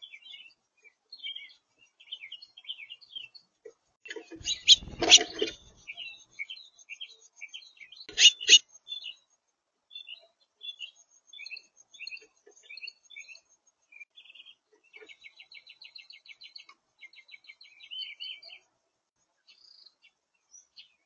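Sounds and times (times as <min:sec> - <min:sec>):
songbirds singing: 0:00.0 - 0:21.0
rapid bird trills: 0:04.2 - 0:09.2.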